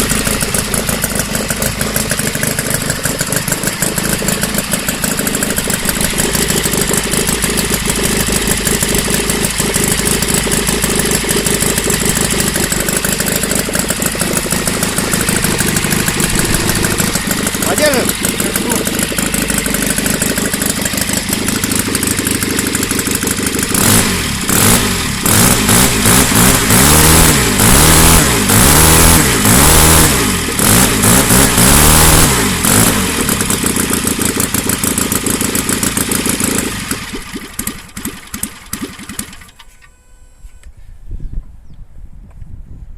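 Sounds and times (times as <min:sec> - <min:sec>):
model aircraft engine revving: 0:00.0 - 0:39.8.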